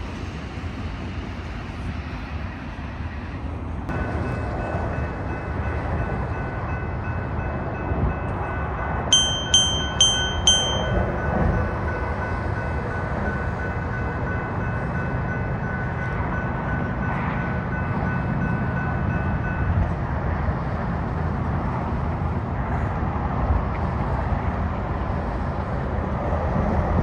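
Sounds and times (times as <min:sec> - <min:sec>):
train passing with rumble: 0:00.0 - 0:27.0
bell-like rings: 0:08.2 - 0:19.7.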